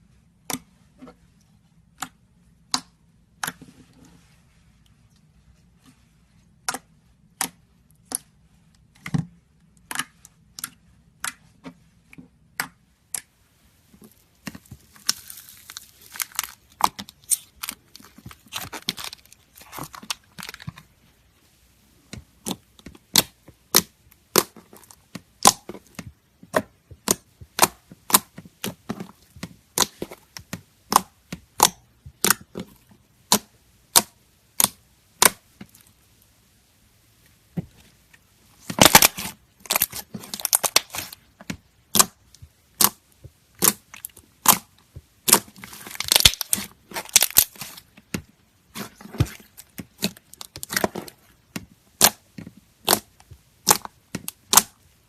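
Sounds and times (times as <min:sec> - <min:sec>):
slime popping and clicking: 0:42.8 - 0:43.0, 0:43.6 - 0:44.7, 0:52.8 - 0:54.8.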